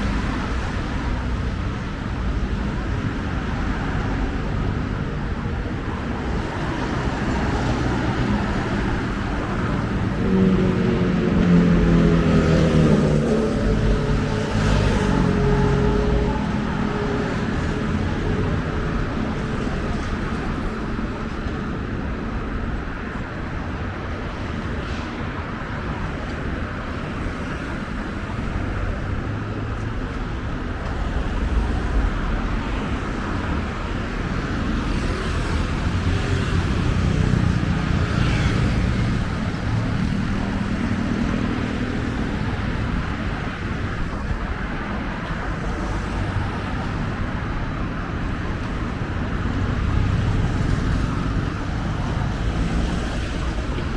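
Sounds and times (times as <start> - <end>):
rumble of passing vehicles: 0.0 - 53.9.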